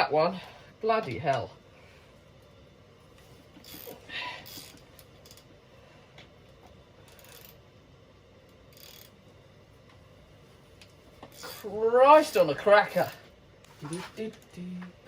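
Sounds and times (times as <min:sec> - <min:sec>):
clinks and scrapes of metal tools: 0:13.0 - 0:14.5.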